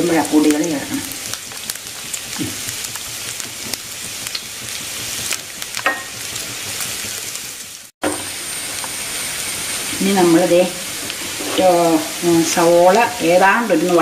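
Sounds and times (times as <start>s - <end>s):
onions sizzling in hot oil: 0.0s - 14.0s
wooden spatula scraping pan: 11.0s - 12.6s.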